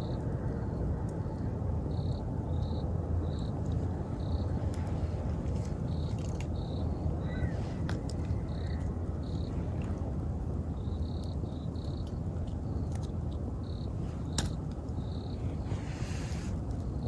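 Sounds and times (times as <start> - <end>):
insect chirping: 0.0 - 17.0
wood fire crackling: 3.4 - 17.0.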